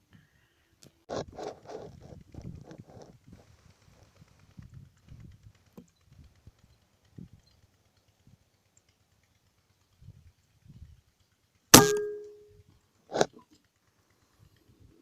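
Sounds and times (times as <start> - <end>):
air rifle shot with metallic ring: 11.8 - 12.5.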